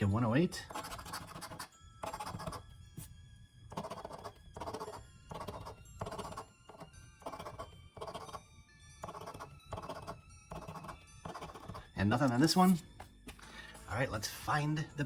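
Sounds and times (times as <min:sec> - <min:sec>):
faint background music: 0:00.0 - 0:15.0
scratching lottery ticket: 0:00.6 - 0:02.6, 0:03.7 - 0:08.4, 0:09.0 - 0:12.6.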